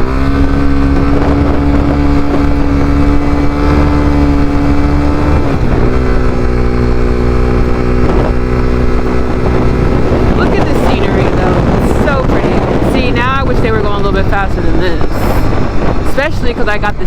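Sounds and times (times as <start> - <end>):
motorcycle engine running: 0.0 - 17.0
wind on microphone: 0.0 - 17.0.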